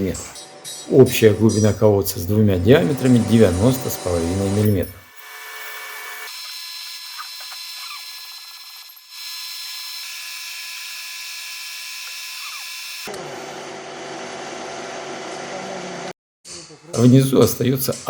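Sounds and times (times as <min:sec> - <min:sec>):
machine spindle high whine: 0:00.2 - 0:16.1.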